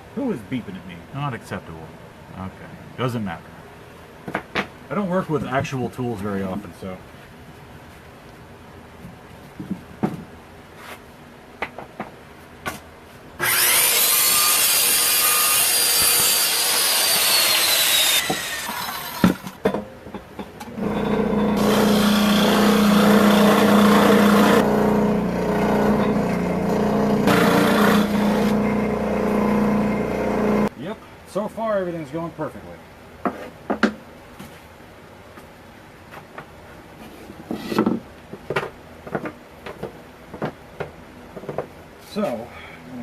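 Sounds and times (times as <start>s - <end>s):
circular saw cutting board: 13.4s - 19.6s, 20.7s - 30.7s.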